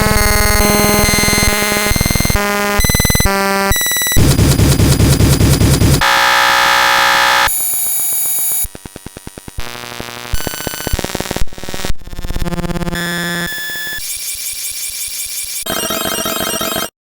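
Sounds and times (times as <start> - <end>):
synthesizer tones: 0.0 - 3.4
alarm-like beeps: 0.0 - 6.2
electronic buzzes: 0.0 - 16.5
quick repeated electronic pulses: 4.1 - 6.0.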